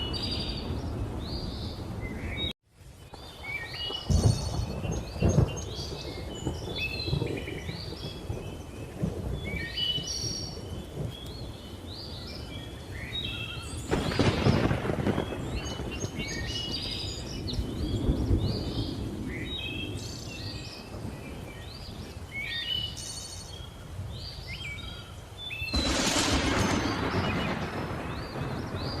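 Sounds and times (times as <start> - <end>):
thunder clap: 3.1 - 11.3, 13.9 - 20.0, 25.7 - 29.0
rolling thunder: 3.1 - 12.0, 13.5 - 22.1, 25.7 - 29.0.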